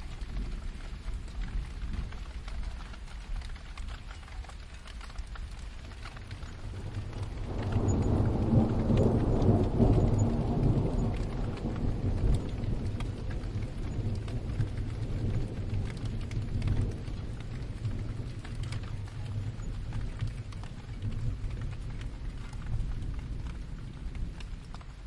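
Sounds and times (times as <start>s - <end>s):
steady rain: 0.0s - 25.0s
distant thunder rumbling: 5.4s - 25.0s.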